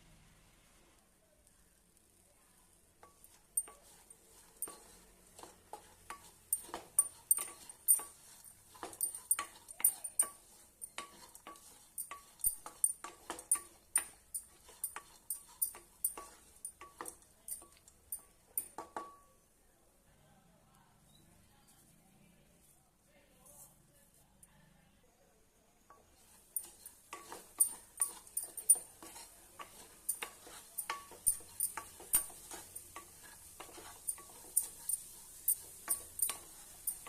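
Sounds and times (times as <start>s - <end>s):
metal spoon clinking on steel pot: 3.0s - 5.5s, 6.1s - 19.2s, 26.5s - 37.0s.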